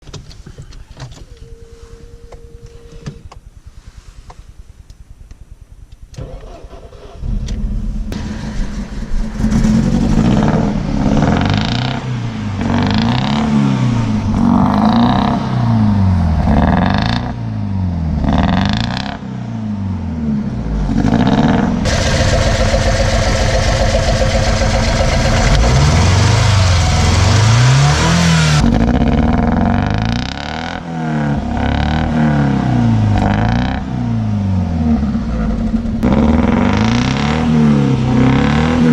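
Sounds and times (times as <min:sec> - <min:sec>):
damaged car engine revving: 0:06.2 - 0:38.9.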